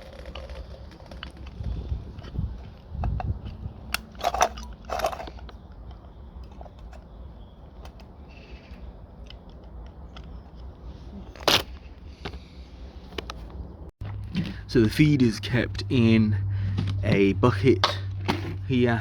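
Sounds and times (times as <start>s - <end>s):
objects being handled: 0.0s - 14.6s.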